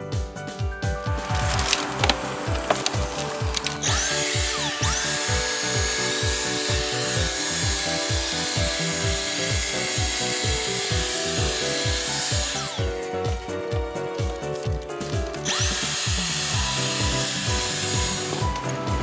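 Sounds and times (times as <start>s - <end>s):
background music with steady beat: 0.0s - 19.0s
small electric motor whining: 1.2s - 19.0s.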